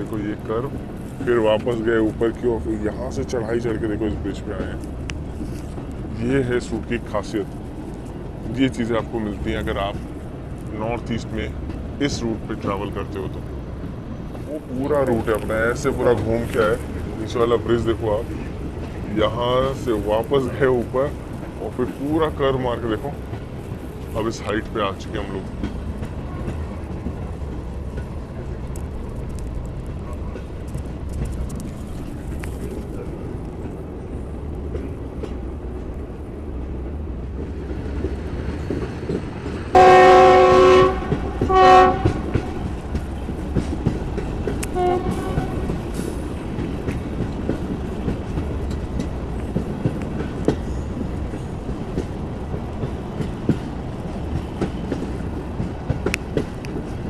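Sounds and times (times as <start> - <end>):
train wheels clicking on rails: 0.0 - 57.0
locomotive horn: 39.7 - 42.4, 44.8 - 45.7.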